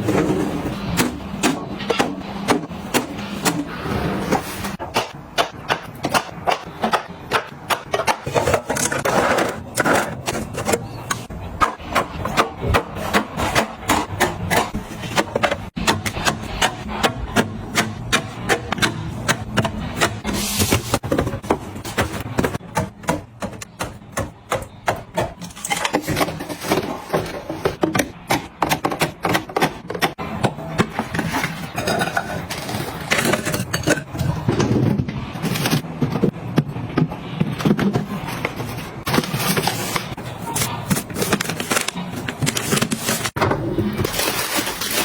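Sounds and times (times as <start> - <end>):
kitchen items clicking and knocking: 0.0 - 45.0
scraping and rubbing: 3.2 - 4.8, 19.8 - 22.6.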